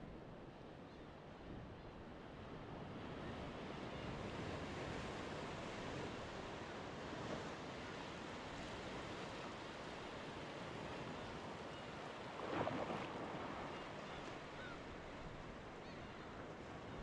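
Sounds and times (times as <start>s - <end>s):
sea waves washing in: 5.1s - 17.0s.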